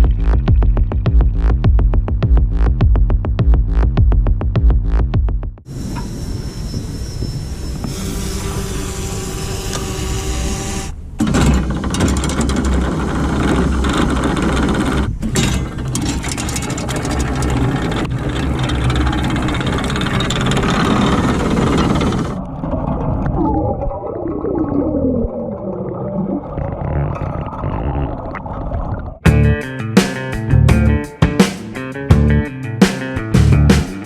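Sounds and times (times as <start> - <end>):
outboard boat engine rumble: 5.7 - 23.0
wind: 5.7 - 24.4.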